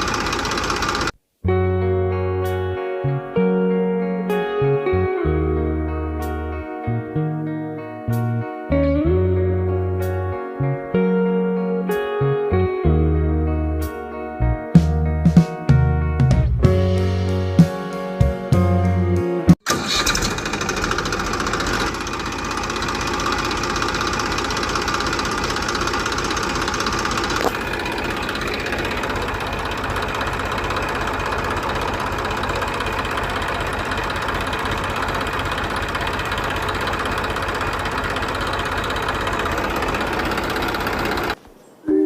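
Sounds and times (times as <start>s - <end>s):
small tractor engine knocking: 0.0s - 1.1s, 19.7s - 41.4s.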